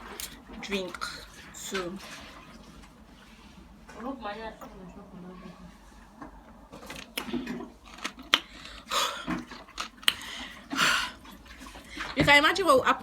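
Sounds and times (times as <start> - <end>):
person chewing: 6.8 - 11.4.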